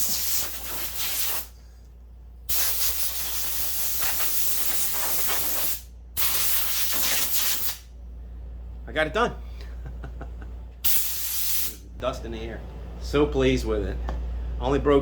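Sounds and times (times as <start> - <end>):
compressed air blow gun hissing: 0.0 - 1.6, 2.5 - 7.8, 10.8 - 11.8.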